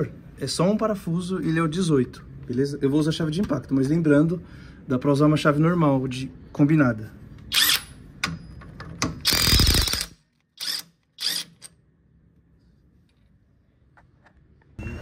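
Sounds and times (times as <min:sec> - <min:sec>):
pneumatic impact wrench bursts: 0:07.5 - 0:08.0, 0:09.2 - 0:11.7.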